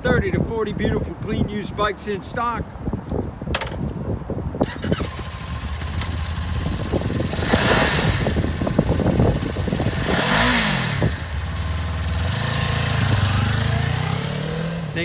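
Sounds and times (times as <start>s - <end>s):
motorcycle engine idling and revving: 4.6s - 15.0s.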